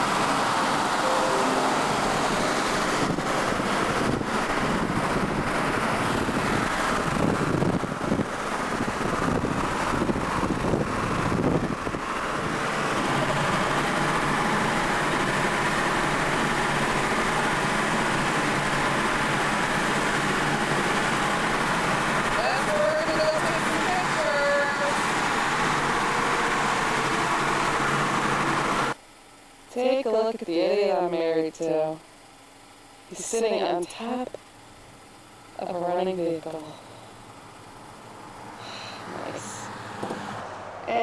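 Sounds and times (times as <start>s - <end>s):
motor vehicle running: 2.1s - 29.0s.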